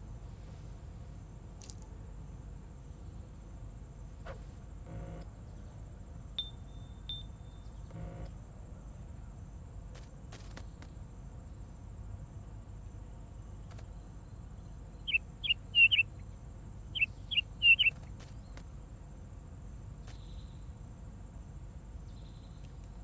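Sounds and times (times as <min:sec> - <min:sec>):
faint high whine: 0:00.0 - 0:09.7
bird chirps: 0:14.2 - 0:18.6.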